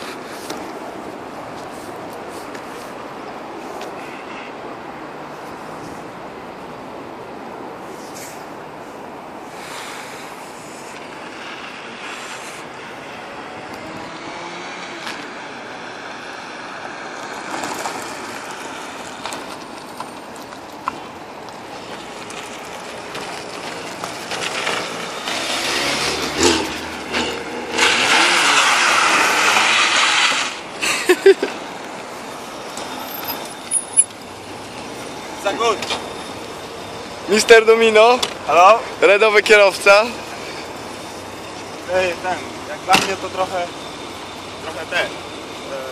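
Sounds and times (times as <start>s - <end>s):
car engine revving: 22.2s - 30.8s.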